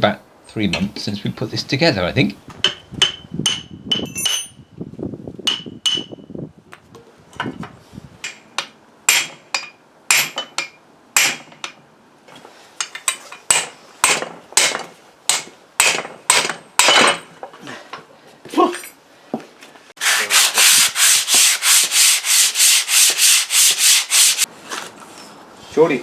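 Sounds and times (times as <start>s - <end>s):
hammer blows on metal: 2.6s - 4.7s.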